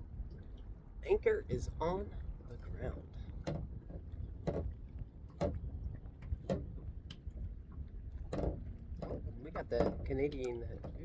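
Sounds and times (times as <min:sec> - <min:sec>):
knocks and slaps against hull: 0:03.4 - 0:07.5, 0:08.1 - 0:11.0.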